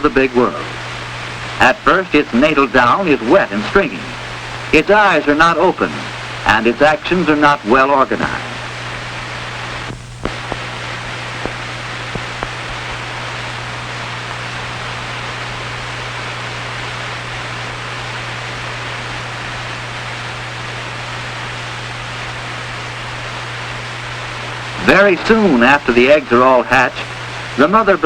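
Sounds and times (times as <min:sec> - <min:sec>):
film soundtrack hiss and hum: 0:00.0 - 0:28.0
faint clicks: 0:09.8 - 0:13.0.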